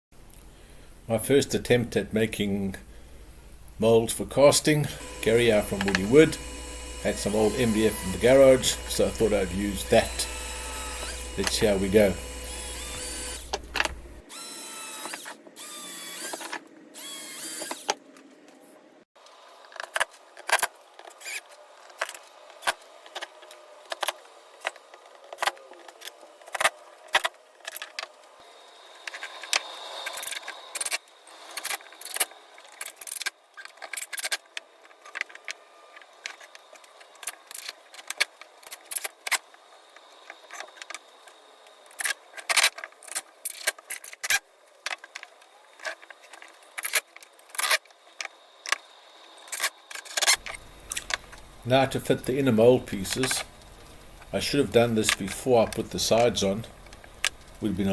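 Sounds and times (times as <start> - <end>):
wood pieces and tools clicking: 5.0 - 18.3, 19.6 - 28.2, 29.0 - 57.9.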